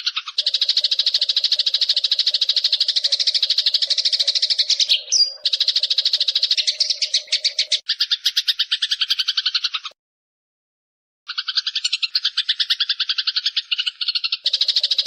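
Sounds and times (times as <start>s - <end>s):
sparrow rattling chatter: 0.0s - 10.0s, 11.3s - 15.0s.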